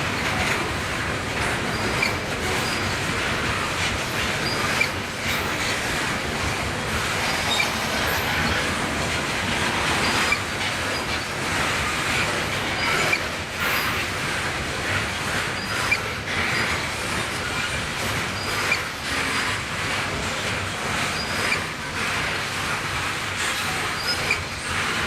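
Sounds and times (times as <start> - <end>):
freight train rumbling on rails: 0.0 - 25.0
wheels clicking over rail joints: 0.0 - 25.0
high-pitched wheel squeals: 7.3 - 8.8.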